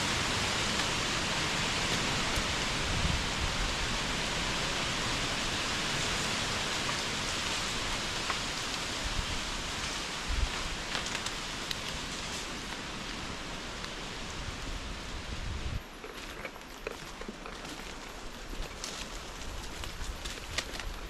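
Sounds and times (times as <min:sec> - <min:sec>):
heavy rain falling: 0:00.0 - 0:15.5
raindrop ticks: 0:10.8 - 0:12.1.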